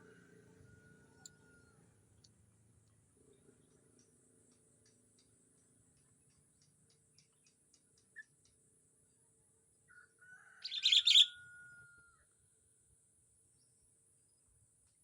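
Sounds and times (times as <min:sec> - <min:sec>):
bird chattering call: 0:10.6 - 0:11.3.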